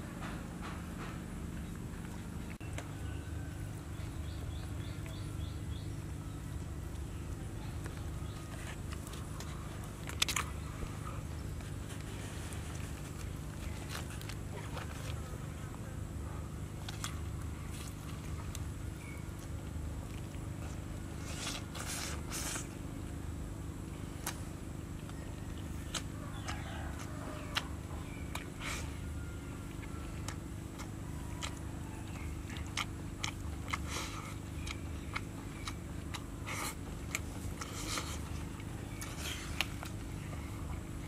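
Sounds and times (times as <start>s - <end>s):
steady low hum: 0.0s - 41.0s
wet chewing: 4.0s - 15.8s, 24.1s - 41.0s
lip smacks and clicks: 8.9s - 10.6s.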